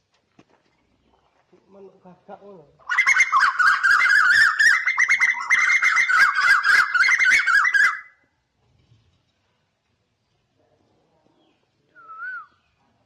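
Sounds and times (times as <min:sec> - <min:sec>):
bird warbling song: 0:02.8 - 0:08.2.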